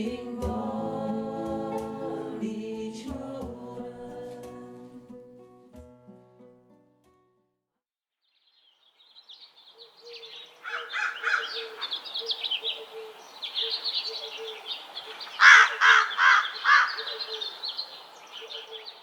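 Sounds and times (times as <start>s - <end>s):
birds singing and chirping: 8.3s - 19.0s
loud bird calls: 8.4s - 19.0s.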